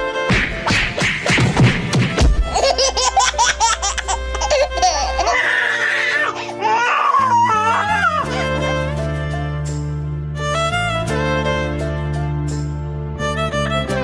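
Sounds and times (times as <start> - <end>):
background music: 0.0 - 14.0
high-pitched giggling laughter: 2.5 - 6.0.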